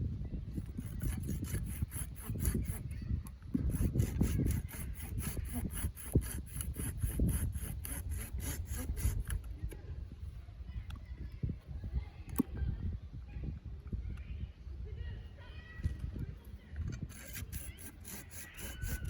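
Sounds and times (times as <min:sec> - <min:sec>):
hand saw cutting wood: 0:00.5 - 0:02.9, 0:03.5 - 0:09.5, 0:17.0 - 0:19.0.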